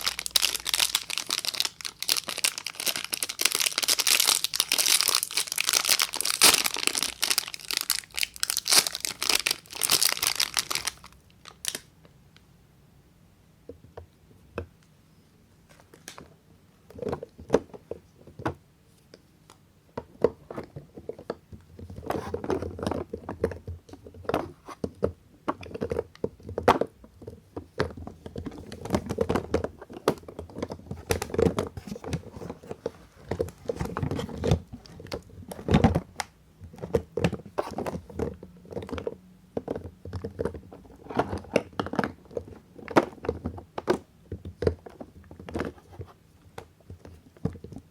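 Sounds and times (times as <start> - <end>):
crinkling packaging: 0.0 - 11.9.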